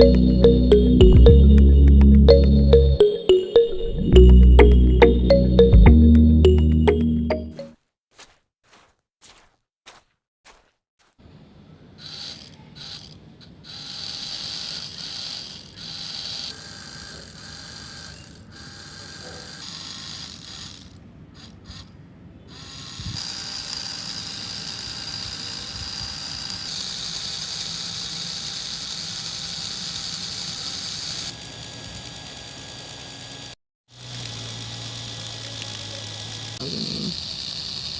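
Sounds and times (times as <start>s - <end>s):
small electric motor whining: 12.0s - 37.9s.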